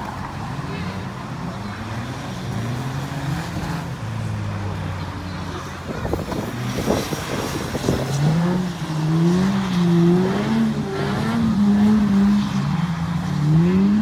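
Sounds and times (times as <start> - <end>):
engine revving up and down: 6.1 - 14.0.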